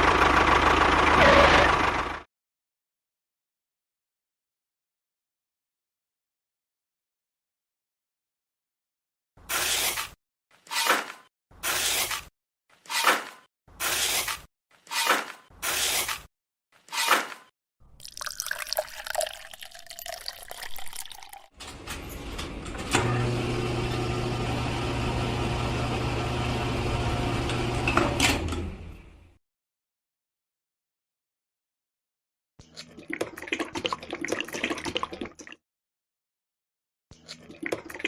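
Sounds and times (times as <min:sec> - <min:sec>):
water running: 0:18.0 - 0:21.5.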